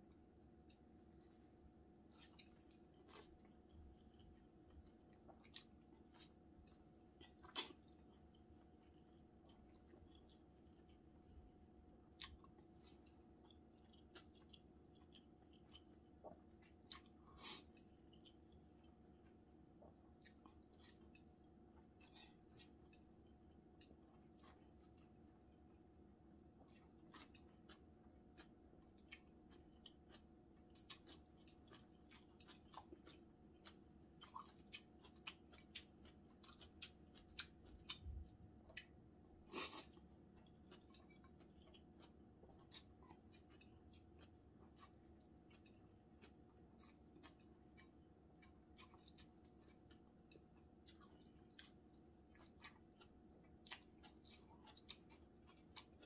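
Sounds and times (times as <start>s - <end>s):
noodles slurped and chewed: 0.7s - 11.4s, 26.5s - 56.0s.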